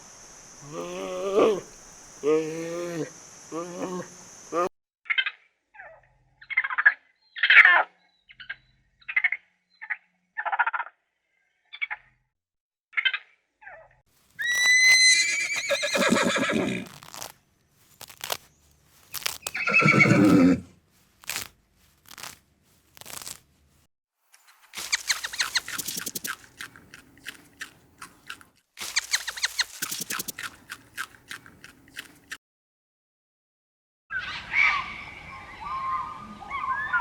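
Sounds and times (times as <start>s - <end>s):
quick clicks and crunches: 14.2s - 23.9s, 24.7s - 32.4s
horse whinnying: 14.4s - 17.0s, 19.5s - 20.7s.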